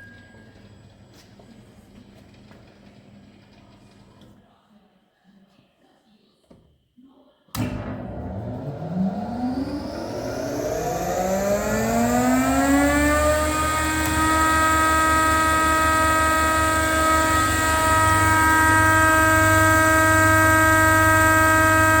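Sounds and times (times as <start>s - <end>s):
low hum: 7.6s - 22.0s
planer high whine: 7.6s - 22.0s.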